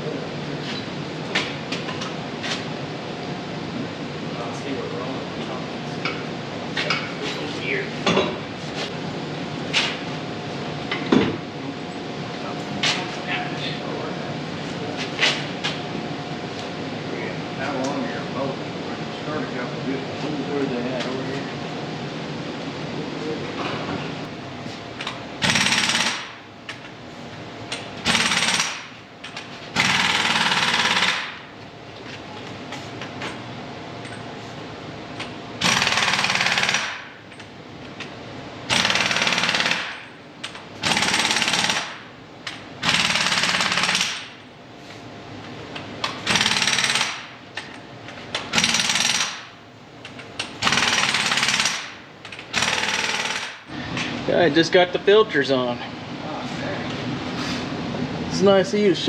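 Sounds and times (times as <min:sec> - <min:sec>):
impact wrench hammering: 0:25.0 - 0:26.8, 0:27.7 - 0:31.5, 0:35.6 - 0:37.2, 0:38.7 - 0:44.4, 0:46.0 - 0:49.6, 0:50.4 - 0:53.7.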